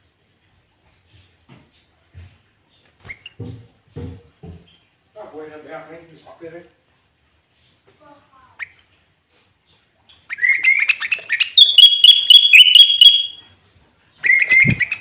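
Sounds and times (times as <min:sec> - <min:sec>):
bird chattering song: 0:10.3 - 0:13.4.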